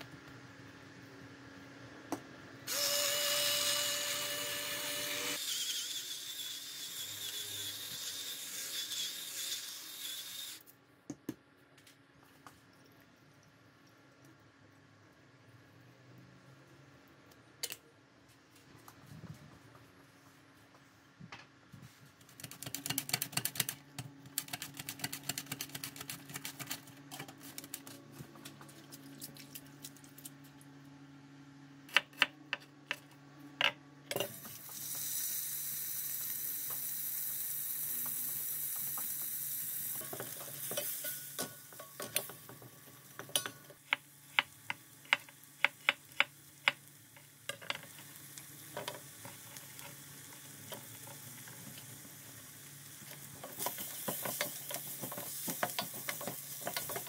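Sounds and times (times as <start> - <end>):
loud sizzle in pot: 34.2 - 57.0.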